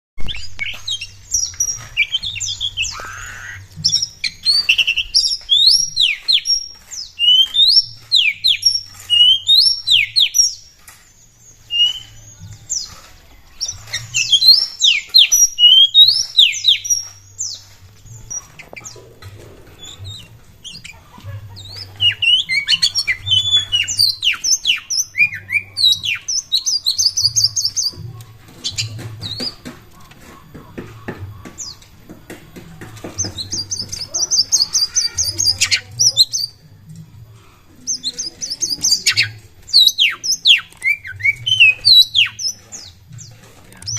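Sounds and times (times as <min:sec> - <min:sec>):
bird song with whistles and chirps: 0:00.2 - 0:19.0, 0:21.6 - 0:28.0, 0:33.2 - 0:36.6, 0:37.9 - 0:43.9.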